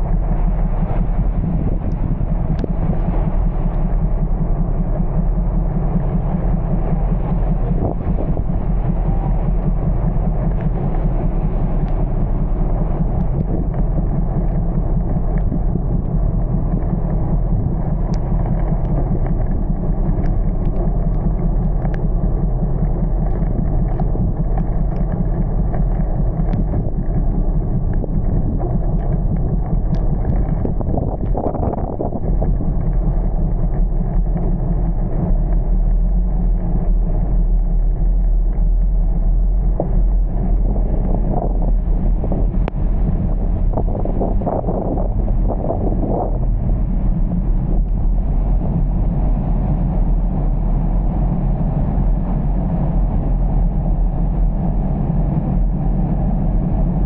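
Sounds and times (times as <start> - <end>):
vehicle low rumble: 0.0 - 57.0
wind buffeting microphone: 0.0 - 57.0
faint ticks: 16.7 - 31.6.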